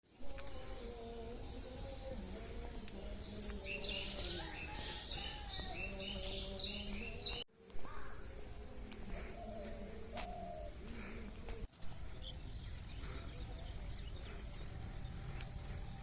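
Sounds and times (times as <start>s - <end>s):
bird chirping: 3.1s - 7.4s.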